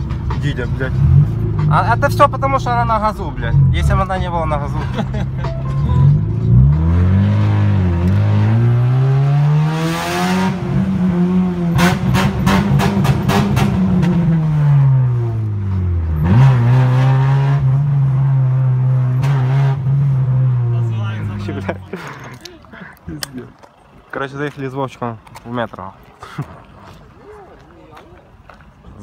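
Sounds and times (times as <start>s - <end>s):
car engine revving: 0.0s - 22.2s.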